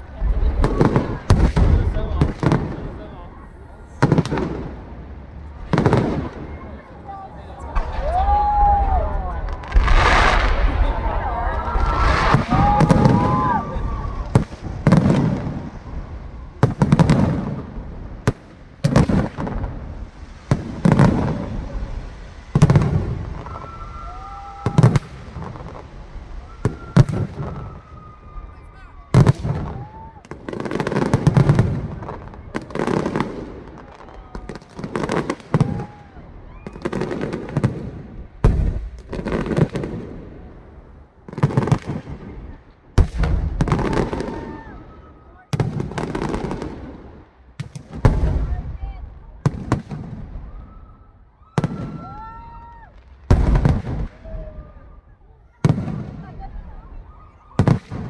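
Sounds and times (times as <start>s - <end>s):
low rumbling echo: 0.0s - 24.6s
fireworks bangs: 0.0s - 58.0s.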